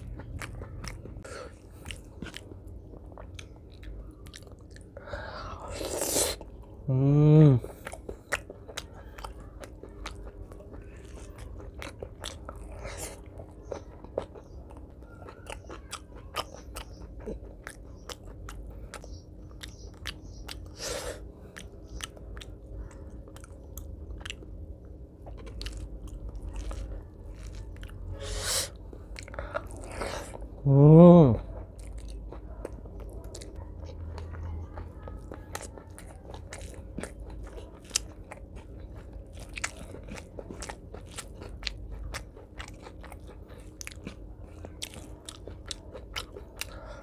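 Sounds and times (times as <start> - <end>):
close chewing with wet mouth clicks: 0.0 - 6.8, 7.6 - 30.6, 31.4 - 47.0.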